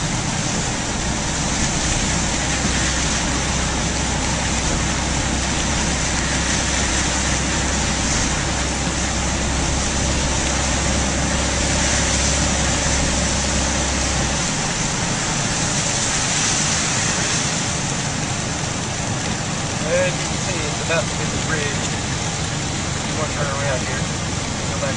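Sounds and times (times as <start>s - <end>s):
car engine rumble from inside: 0.0s - 24.9s
rain and wet road hiss: 0.0s - 24.9s.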